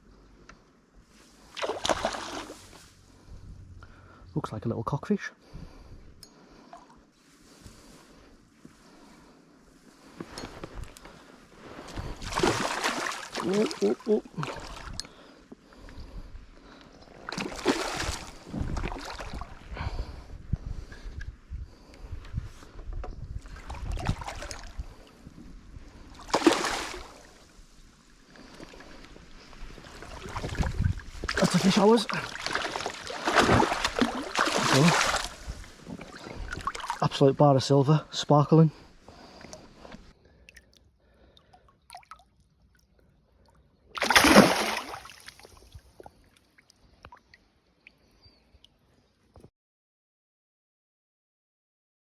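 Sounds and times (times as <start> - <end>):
water splashing: 1.5 - 2.8, 11.8 - 15.0, 17.2 - 19.5, 26.2 - 27.5, 29.8 - 37.1, 40.4 - 42.4, 44.0 - 45.8
faint water and handling noises: 6.3 - 19.8, 21.9 - 37.5
loud splash in river: 12.2 - 13.8, 26.3 - 27.2, 32.3 - 35.3, 44.0 - 45.5
wind buffeting microphone: 18.0 - 26.0, 29.6 - 31.5.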